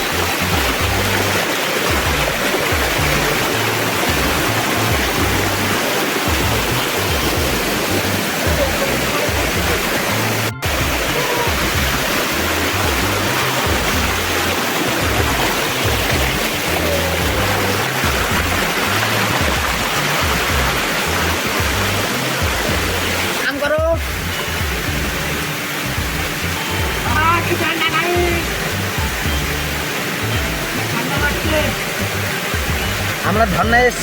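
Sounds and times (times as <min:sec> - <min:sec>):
background music with bass line: 0:00.0 - 0:34.0
waterfall rushing: 0:00.0 - 0:34.0.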